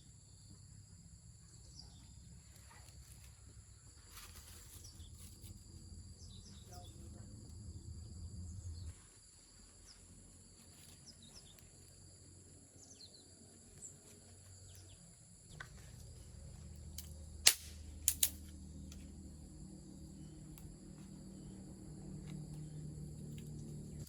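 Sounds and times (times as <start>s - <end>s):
insects trilling: 0.0s - 24.0s
low rumble: 5.6s - 9.1s.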